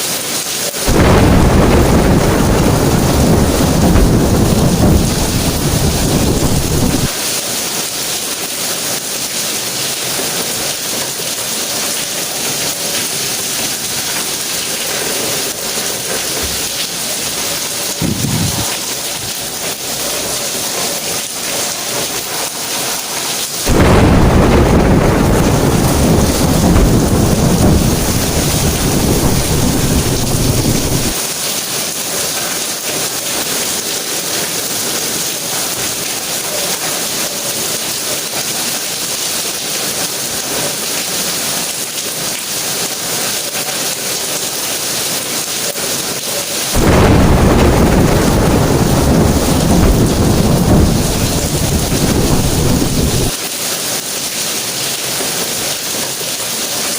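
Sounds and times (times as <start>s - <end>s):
steady rain falling: 0.0s - 56.9s
rolling thunder: 0.9s - 7.2s, 17.9s - 19.8s, 23.7s - 31.2s, 46.8s - 53.4s.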